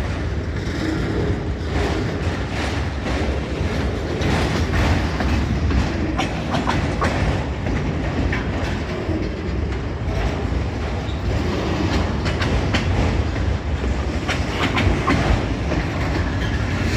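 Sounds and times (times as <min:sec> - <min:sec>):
freight train cars rolling past: 0:00.0 - 0:16.9
wheels clacking over rail joints: 0:00.0 - 0:16.9.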